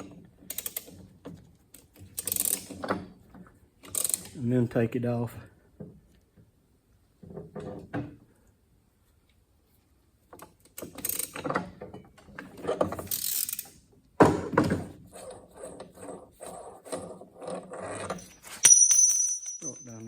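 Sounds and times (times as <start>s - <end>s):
ratchet clicking: 13.1s - 13.8s
metal parts and tools clattering: 18.0s - 20.0s.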